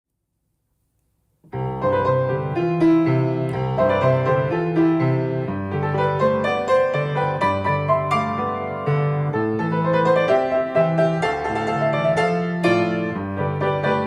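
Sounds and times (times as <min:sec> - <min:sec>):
gentle piano music: 0:01.5 - 0:14.0.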